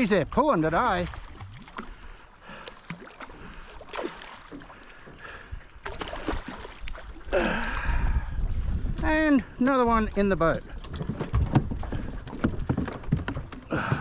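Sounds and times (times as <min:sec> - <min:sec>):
knocks and splashes: 0:00.0 - 0:14.0
water lapping around boat: 0:00.0 - 0:14.0
wind buffeting microphone: 0:05.2 - 0:14.0.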